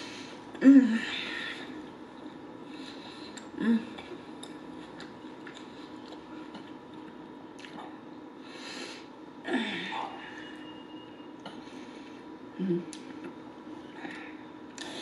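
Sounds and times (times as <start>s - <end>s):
breath with falling hum: 0.0s - 5.0s, 7.8s - 10.8s, 11.4s - 15.0s
wet chewing with mouth closed: 4.2s - 7.9s.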